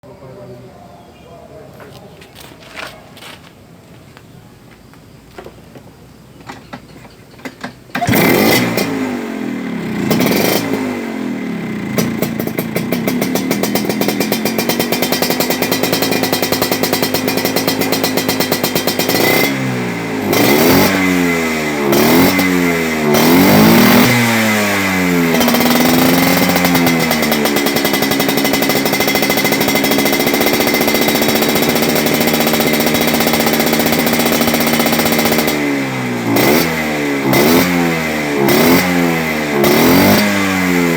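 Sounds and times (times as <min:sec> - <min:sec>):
scooter engine revving and idling: 0:07.6 - 0:40.9.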